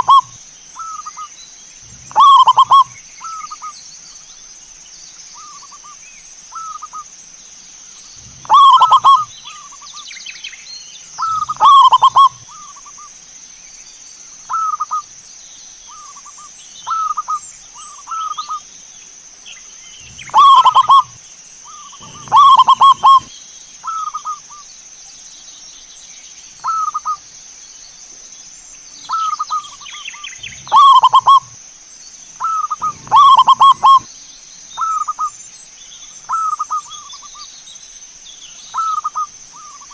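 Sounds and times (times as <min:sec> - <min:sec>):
doves cooing: 0:00.0 - 0:03.7, 0:08.1 - 0:09.9, 0:11.2 - 0:13.0, 0:19.9 - 0:23.3, 0:29.1 - 0:31.6, 0:32.4 - 0:34.1
steady high hiss: 0:00.0 - 0:39.9.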